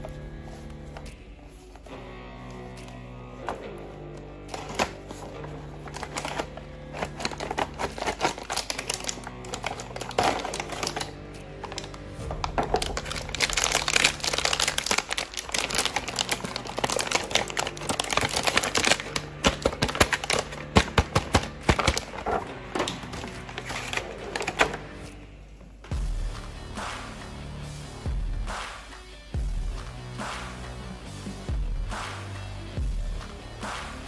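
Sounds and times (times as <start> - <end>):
plastic packaging clicking and crinkling: 0.0 - 25.2
background music: 0.0 - 34.0.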